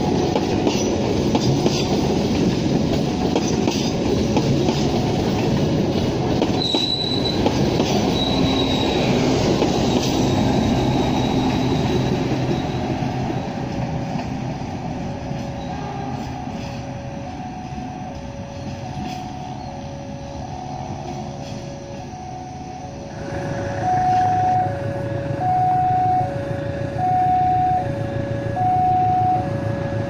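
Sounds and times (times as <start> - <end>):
train coaches rumbling on rails: 0.0 - 30.0
high wheel squeal: 6.6 - 13.6.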